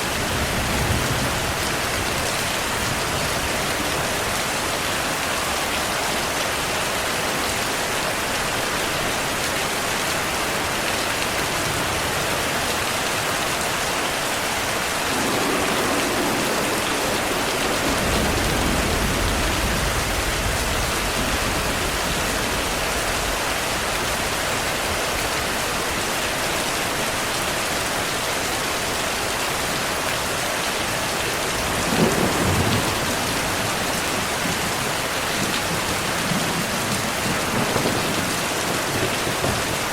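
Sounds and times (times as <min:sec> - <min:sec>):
rain falling: 0:00.0 - 0:39.9
thunder rolling: 0:14.9 - 0:24.2, 0:31.5 - 0:39.9
thunder crack: 0:15.0 - 0:23.4.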